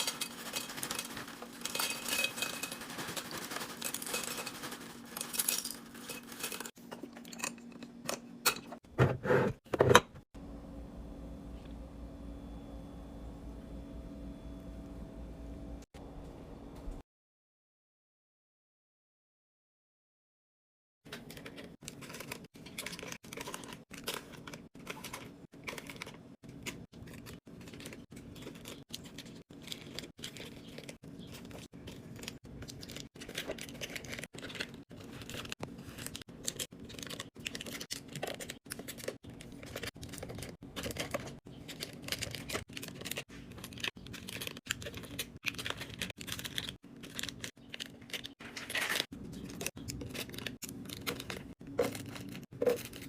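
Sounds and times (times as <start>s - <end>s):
food packaging rustling: 0.0s - 6.8s, 21.1s - 53.0s.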